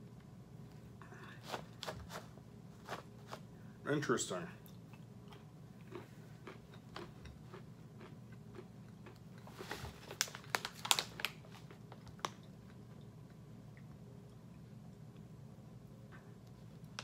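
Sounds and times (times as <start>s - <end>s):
peanuts being chewed: 4.6s - 10.3s
foil snack bag crackling: 9.5s - 12.4s.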